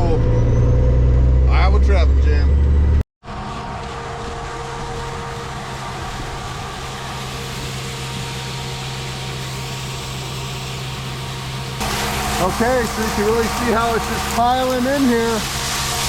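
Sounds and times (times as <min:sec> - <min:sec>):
machine hum: 0:02.4 - 0:16.0
grain pouring hiss: 0:05.0 - 0:16.0.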